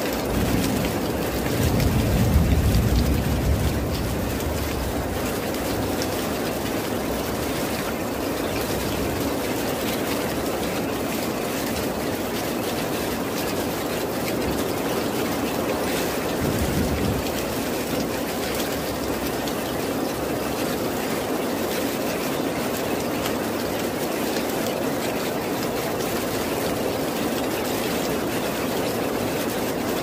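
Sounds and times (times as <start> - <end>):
heavy rain: 0.0 - 30.0
distant thunder rumble: 0.1 - 7.8, 14.8 - 19.3.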